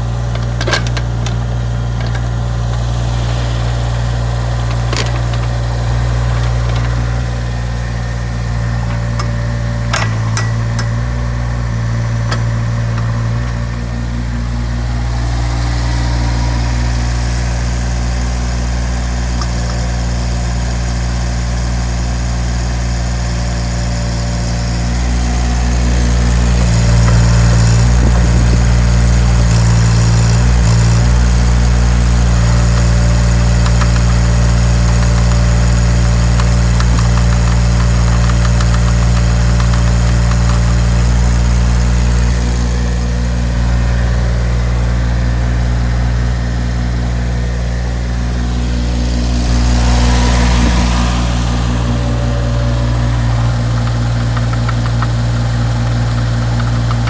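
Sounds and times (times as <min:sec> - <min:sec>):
excavator diesel engine running: 0:00.0 - 0:57.0
knocking and clatter: 0:00.2 - 0:07.6, 0:49.8 - 0:57.0.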